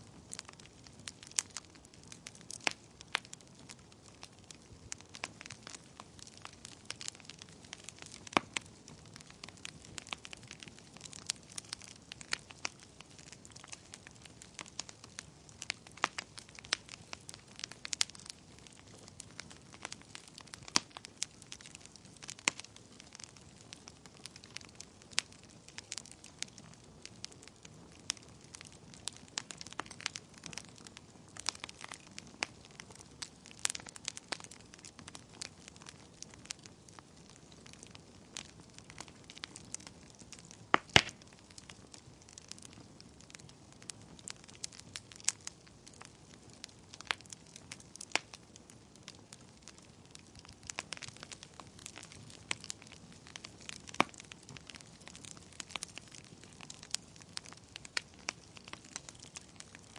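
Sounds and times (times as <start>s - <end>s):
crackles and pops of burning logs: 0.0s - 59.9s.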